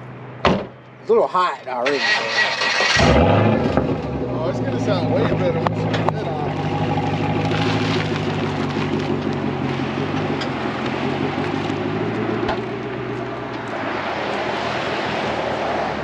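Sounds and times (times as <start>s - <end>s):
car engine idling: 1.9s - 13.8s.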